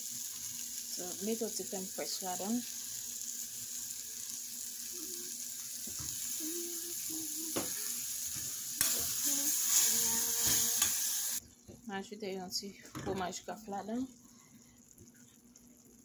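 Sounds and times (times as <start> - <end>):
meat sizzling in butter: 0.0 - 11.4.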